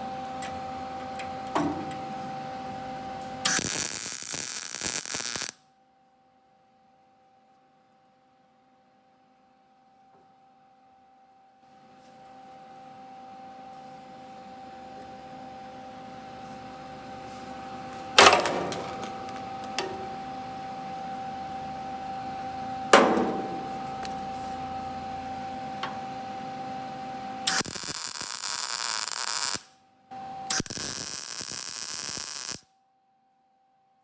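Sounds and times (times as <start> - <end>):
power tool or welding bursts: 3.4 - 5.6, 27.5 - 29.7, 30.5 - 32.6
steady hum: 17.0 - 27.4
ringing metal impacts: 23.0 - 24.1.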